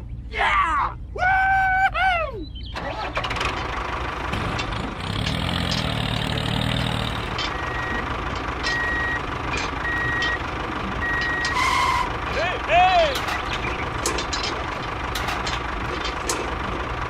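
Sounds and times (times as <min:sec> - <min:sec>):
model vehicle engine-like hum: 0:02.6 - 0:17.0
reversing beeper: 0:07.4 - 0:12.1.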